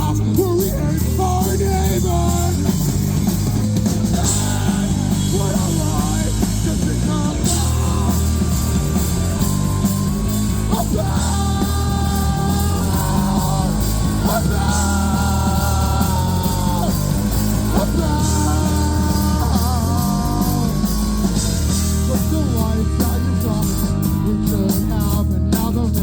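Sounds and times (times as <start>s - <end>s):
punk rock band playing: 0.0s - 26.0s
person singing long notes: 4.1s - 26.0s.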